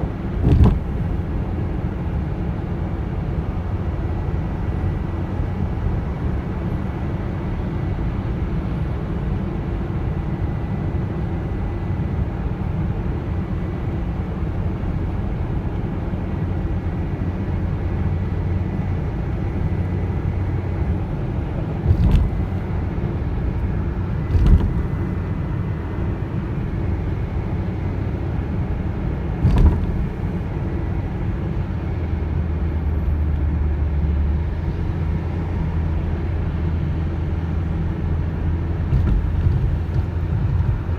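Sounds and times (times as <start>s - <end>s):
car engine and road noise: 0.0s - 40.9s
short thumps: 0.3s - 1.3s, 21.8s - 22.7s, 24.2s - 25.3s, 29.4s - 30.5s, 38.9s - 40.9s.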